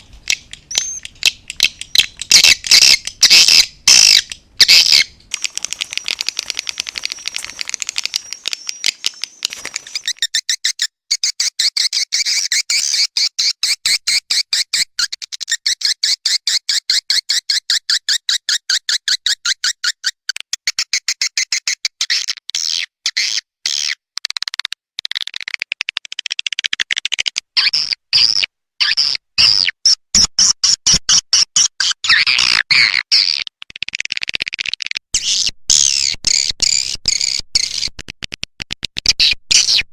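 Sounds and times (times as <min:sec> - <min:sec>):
swiftlet chirps: 0:04.8 - 0:10.2.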